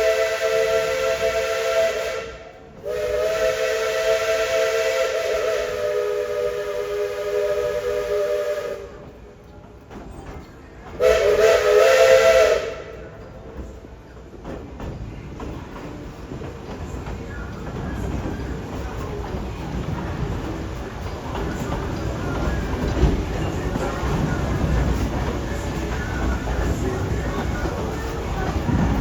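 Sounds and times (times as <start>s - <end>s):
steam locomotive chime whistle: 0.0s - 9.0s, 11.0s - 13.2s
faint train running noise: 0.0s - 29.0s.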